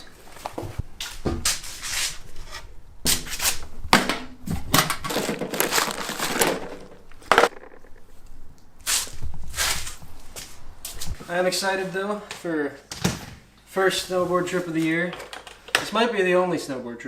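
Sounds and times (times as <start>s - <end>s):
packaging crinkling and rustling: 4.6s - 7.6s.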